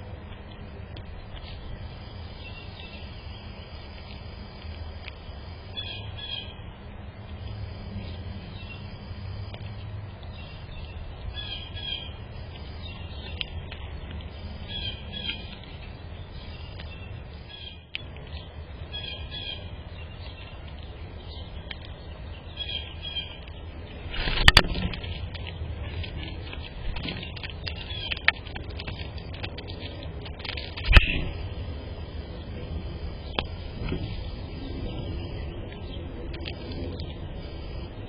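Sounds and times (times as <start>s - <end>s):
steady low rumble: 0.0s - 38.0s
bird calling: 10.3s - 12.2s, 18.9s - 20.6s.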